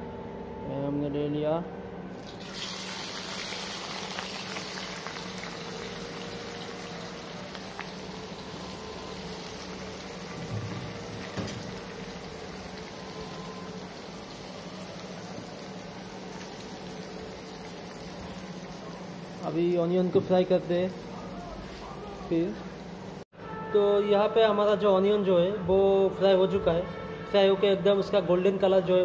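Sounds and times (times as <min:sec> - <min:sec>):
onions sizzling in hot oil: 0:02.2 - 0:19.9.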